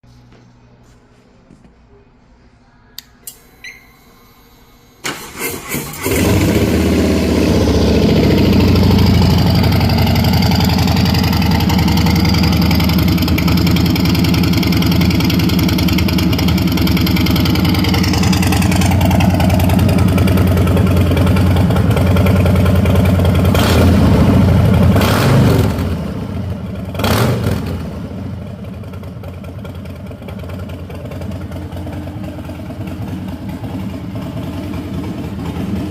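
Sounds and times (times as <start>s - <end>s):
engine cranking: 5.0s - 7.3s
motorcycle engine idling: 6.2s - 25.0s, 25.9s - 27.0s, 27.8s - 35.9s.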